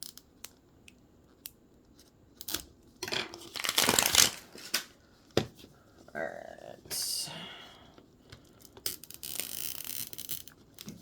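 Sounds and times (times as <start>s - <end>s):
plastic packaging crinkling and tearing: 3.3s - 5.0s.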